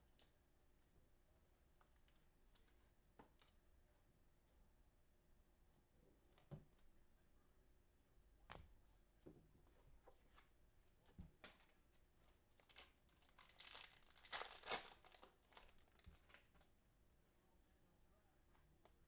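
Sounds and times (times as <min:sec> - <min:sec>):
cellophane wrapper crinkling and tearing: 0:12.6 - 0:16.6.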